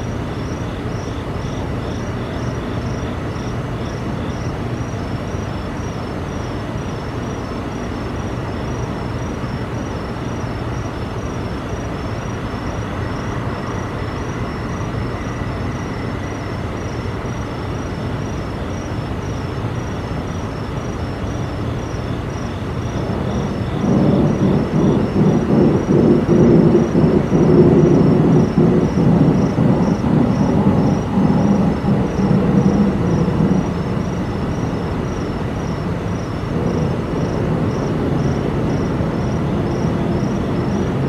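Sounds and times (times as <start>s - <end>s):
insects chirping: 0.0s - 41.0s
low rumbling drone: 22.9s - 41.0s.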